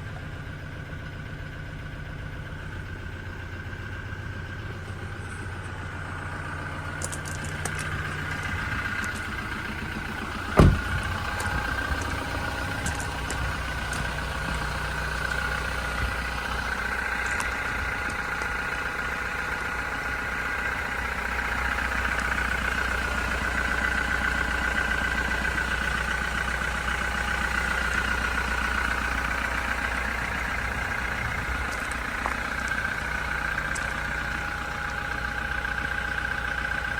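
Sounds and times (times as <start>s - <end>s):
diesel engine idling: 0.0s - 36.9s
sharp thump: 10.6s - 11.6s.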